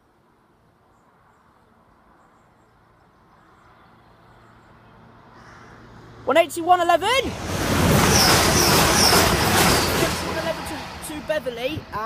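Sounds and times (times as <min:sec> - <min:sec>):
low train engine hum: 0:03.4 - 0:12.0
wheels rushing on rail: 0:06.2 - 0:12.0.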